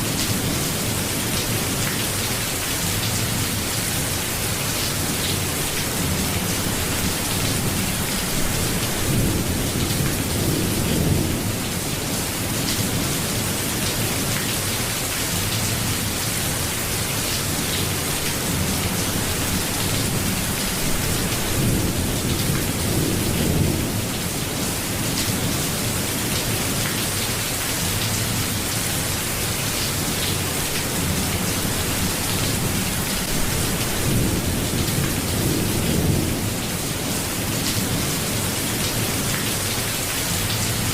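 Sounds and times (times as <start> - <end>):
steady rain hissing: 0.0 - 40.9.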